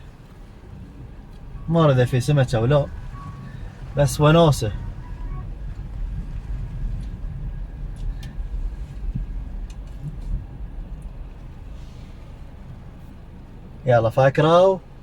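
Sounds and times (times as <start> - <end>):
wind buffeting microphone: 2.1 - 13.8
faint clicks: 9.0 - 11.6.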